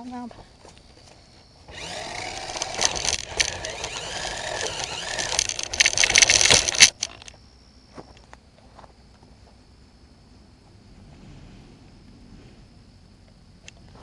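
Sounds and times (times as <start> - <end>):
electric motor whining: 1.7 - 7.3
gears and wheels rattling: 1.7 - 7.4.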